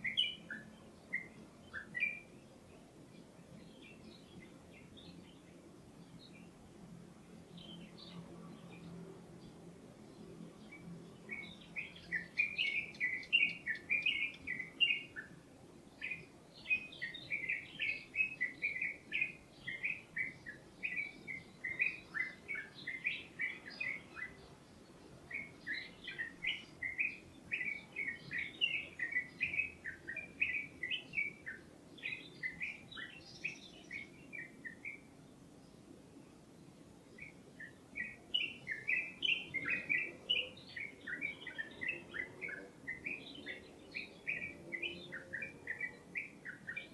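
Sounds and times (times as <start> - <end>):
songbird chattering chirps: 10.6 - 15.4, 16.0 - 35.1, 37.2 - 46.9.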